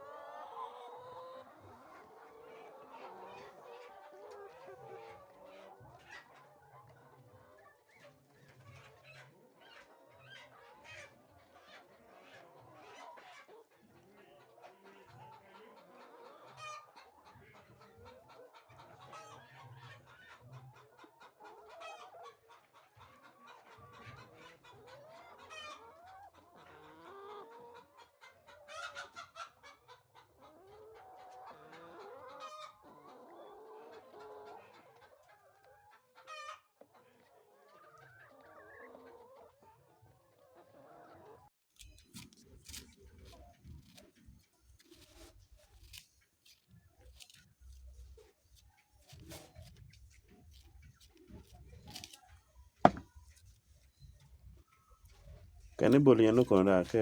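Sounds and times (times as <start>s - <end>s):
chickens clucking: 0.0s - 41.5s, 42.1s - 57.0s
sharp chicken calls: 15.1s - 39.7s.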